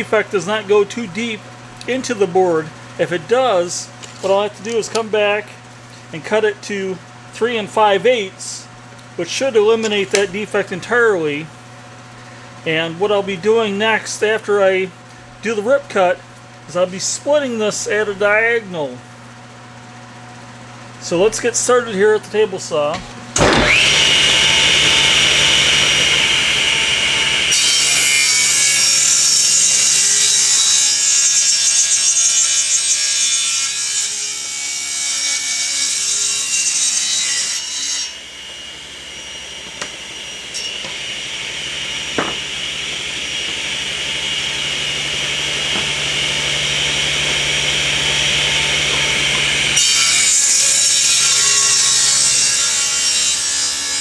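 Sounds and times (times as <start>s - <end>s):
table saw cutting wood: 1.9s - 5.4s, 9.2s - 11.0s, 22.9s - 54.0s.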